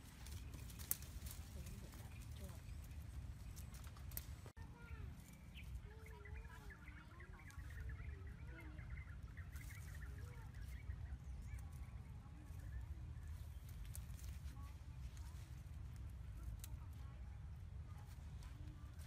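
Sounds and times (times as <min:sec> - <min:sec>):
birds chirping and calling: 0:00.0 - 0:14.6
leaves rustling: 0:00.0 - 0:19.0
steady low rumble: 0:00.0 - 0:19.0.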